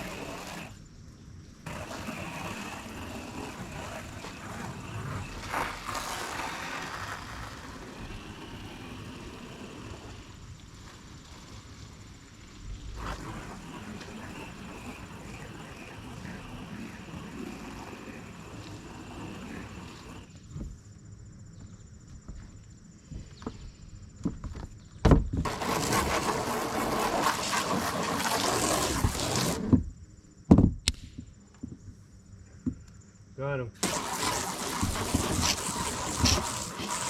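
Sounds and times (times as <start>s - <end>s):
hose spraying water on roof: 0.0s - 0.8s, 1.6s - 20.3s, 25.4s - 29.8s, 33.8s - 37.0s.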